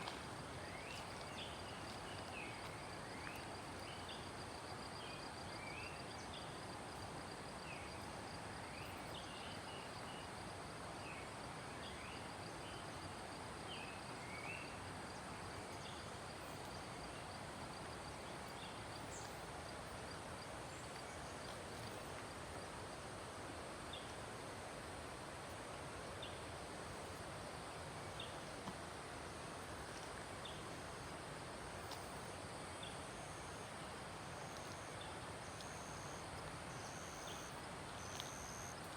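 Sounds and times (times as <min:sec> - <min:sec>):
stream running: 0:00.0 - 0:38.9
insect trill: 0:32.7 - 0:38.9.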